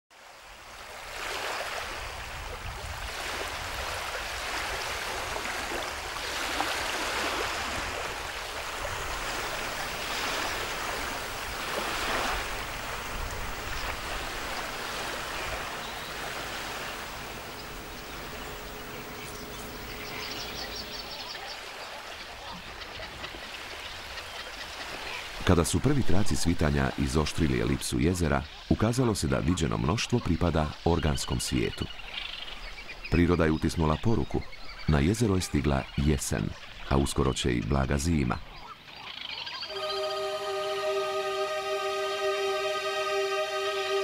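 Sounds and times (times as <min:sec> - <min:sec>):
rushing water: 0:00.1 - 0:33.0, 0:39.7 - 0:44.0
faint steady tone: 0:09.2 - 0:21.5
high ticking chirps: 0:09.4 - 0:21.4.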